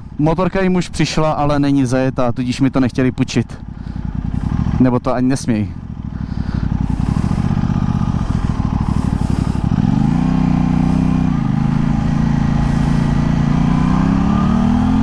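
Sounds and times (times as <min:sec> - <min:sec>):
motorcycle engine revving: 0:03.4 - 0:15.0.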